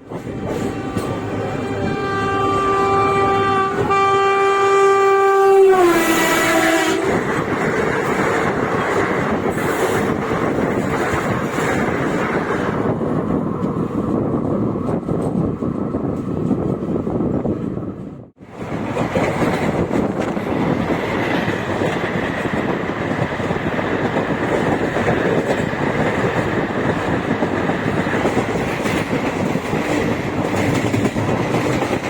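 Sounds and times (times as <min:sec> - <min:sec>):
train rumbling over rails: 0:00.0 - 0:32.0
train horn: 0:00.1 - 0:07.4.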